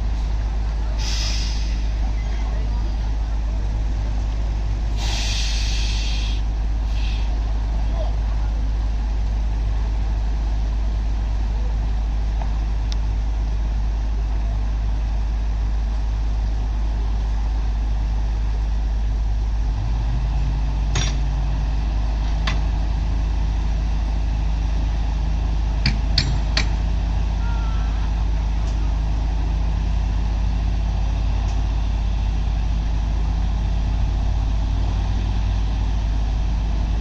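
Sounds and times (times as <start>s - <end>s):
heavy diesel machinery running: 0.0s - 37.0s
metallic clanks: 20.9s - 21.3s.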